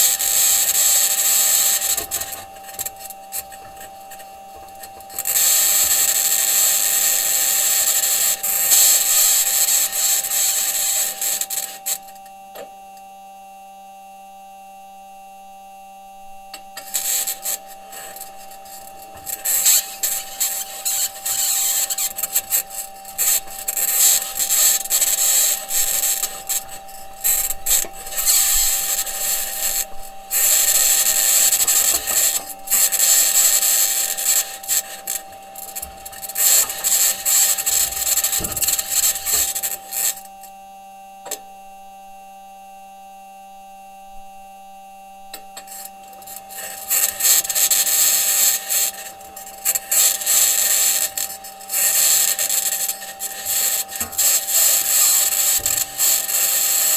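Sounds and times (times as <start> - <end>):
rover wheels grinding and scraping: 16.7 - 40.2, 46.6 - 56.9.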